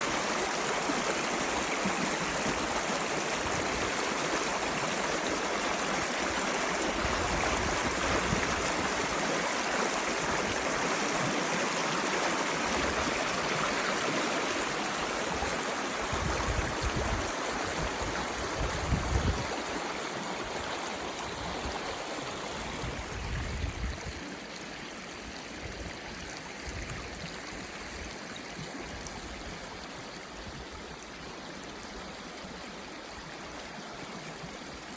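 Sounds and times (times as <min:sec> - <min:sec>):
river water rushing: 0:00.0 - 0:25.6.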